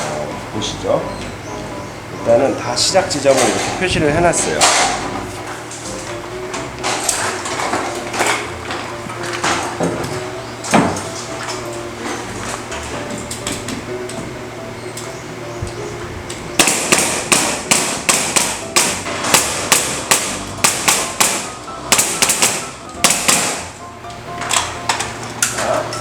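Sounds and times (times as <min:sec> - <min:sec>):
light background music: 0:00.0 - 0:26.0
hammer striking nails into wood: 0:16.6 - 0:23.7.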